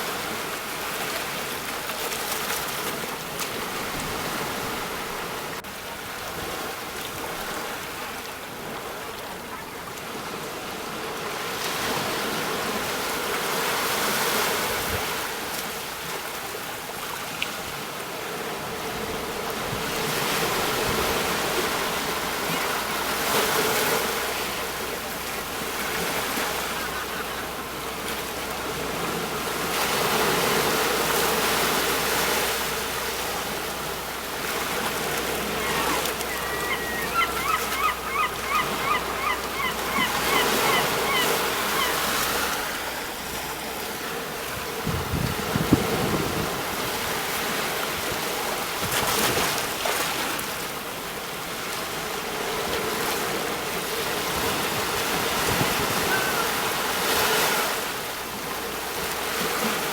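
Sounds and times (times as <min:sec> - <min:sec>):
waves breaking on shore: 0:00.0 - 0:59.9
bird calling short notes: 0:35.6 - 0:42.0.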